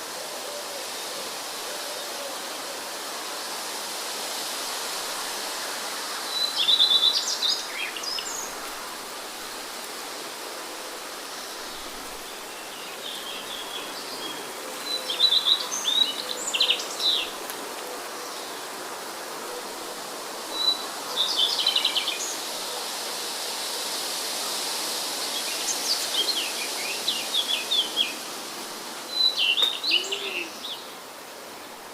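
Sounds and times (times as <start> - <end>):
rain: 0.0 - 31.9
wind: 0.0 - 31.9
songbird chirping: 11.0 - 19.0, 25.4 - 31.9.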